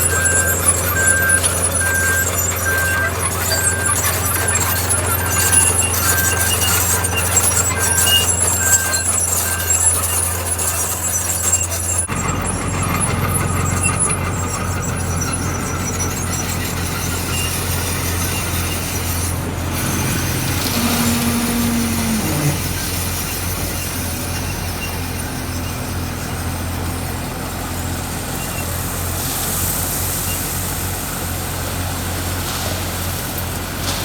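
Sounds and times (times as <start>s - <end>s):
steady whine: 0.0s - 12.9s
high squeaking tones: 0.0s - 26.8s
diesel engine drone: 0.0s - 34.0s.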